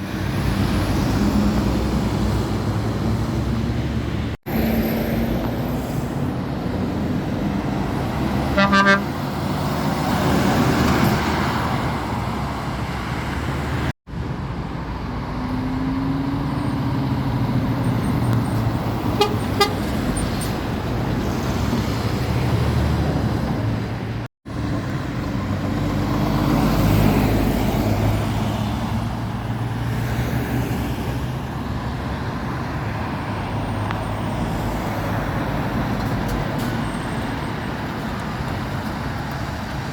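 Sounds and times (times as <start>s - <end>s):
lorries passing close by: 0.0s - 39.9s
road traffic: 0.0s - 39.9s
vehicle horn toots: 8.5s - 9.2s, 19.1s - 19.9s.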